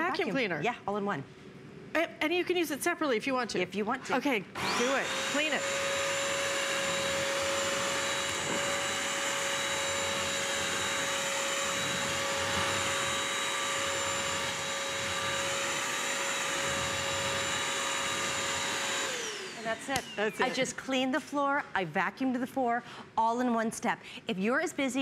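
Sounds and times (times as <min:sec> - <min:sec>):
wet vacuum whining: 0:04.6 - 0:20.6.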